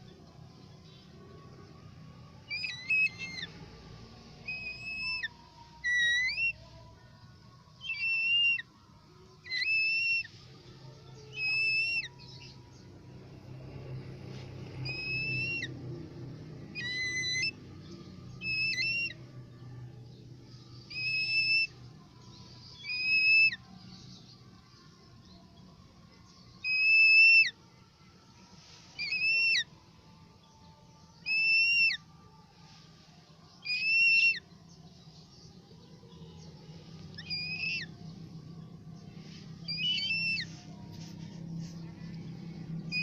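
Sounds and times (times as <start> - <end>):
bird whistling short notes: 29.0 - 29.6.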